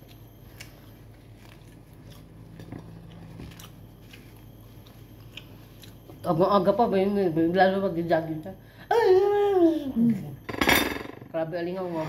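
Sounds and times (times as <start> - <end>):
person chewing food: 0.0 - 6.2
electric fan humming: 0.0 - 12.0.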